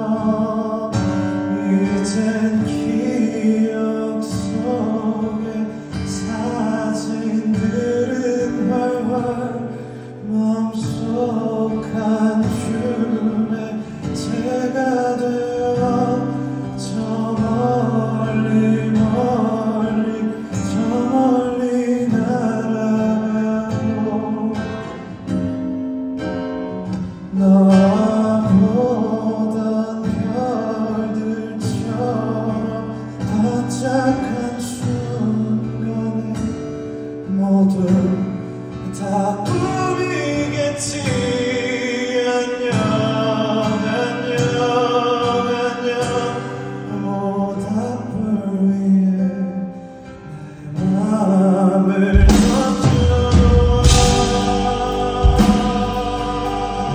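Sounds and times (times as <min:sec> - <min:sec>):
man singing pop song: 0:00.0 - 0:25.6, 0:27.0 - 0:56.9
instrumental accompaniment: 0:52.1 - 0:56.9.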